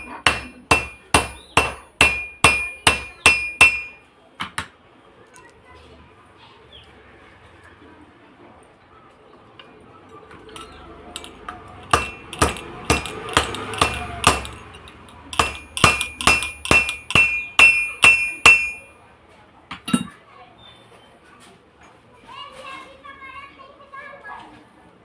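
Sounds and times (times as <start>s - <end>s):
hammer striking metal: 0.0s - 4.7s, 10.6s - 18.9s.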